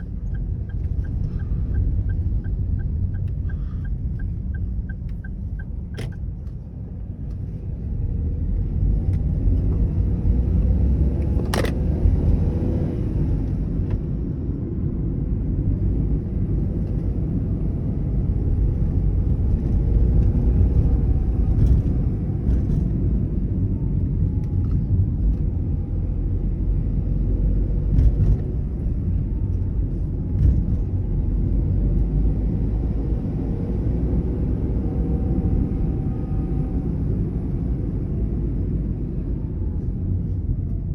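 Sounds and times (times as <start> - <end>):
car engine and road rumble: 0.0 - 40.9.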